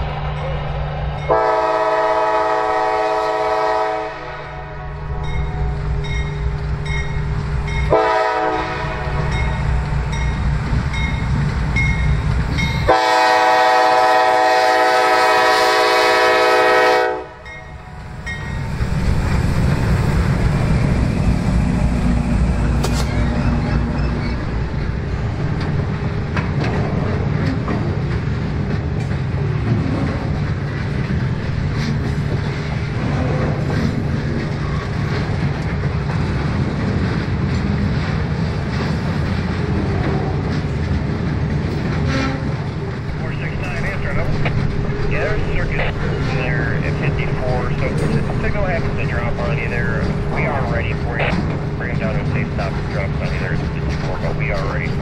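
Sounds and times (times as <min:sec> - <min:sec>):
train wheels rumbling on rail: 0:00.0 - 0:55.0
locomotive horn blasts: 0:01.3 - 0:04.9, 0:07.9 - 0:09.3, 0:12.8 - 0:17.5
low engine drone: 0:42.9 - 0:55.0.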